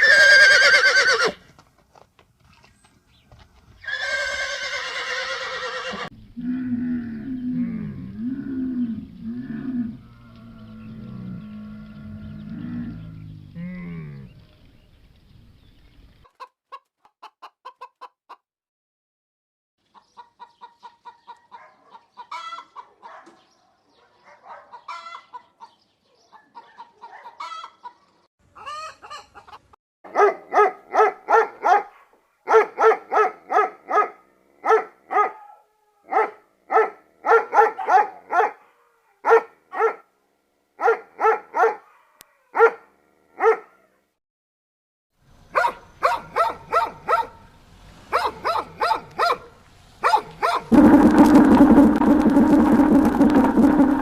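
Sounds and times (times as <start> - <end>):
cow mooing: 5.9 - 14.3
chickens clucking: 16.1 - 18.4, 19.9 - 23.4, 24.5 - 25.8, 26.4 - 29.8.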